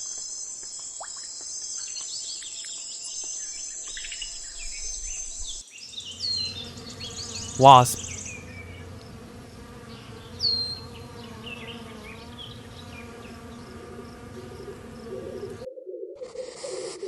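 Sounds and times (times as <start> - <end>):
wasp buzzing: 8.8 - 14.9.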